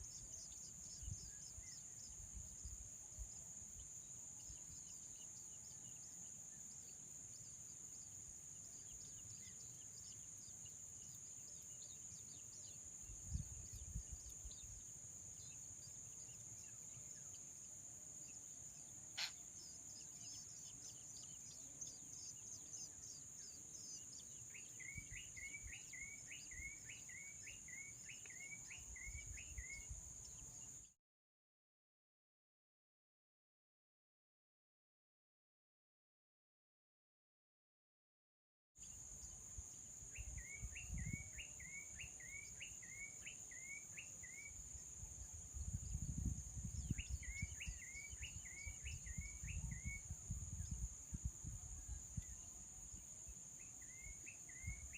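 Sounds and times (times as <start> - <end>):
insect drone: 0.0 - 31.0, 38.8 - 54.9
bird chirps: 3.7 - 30.9, 40.1 - 44.9, 46.7 - 52.6, 53.5 - 54.9
repeated bird call notes: 19.1 - 22.7
sharp click: 19.2 - 19.4.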